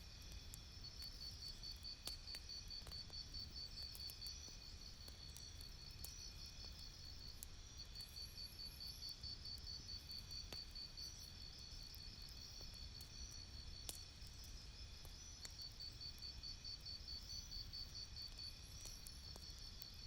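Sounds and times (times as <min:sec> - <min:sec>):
faint campfire crackle: 0:00.0 - 0:20.0
crickets chirping: 0:14.4 - 0:20.0.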